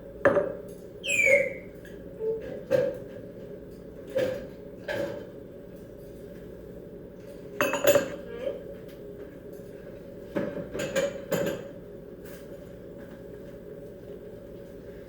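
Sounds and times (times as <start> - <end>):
dishes and cutlery clattering: 7.6 - 8.2.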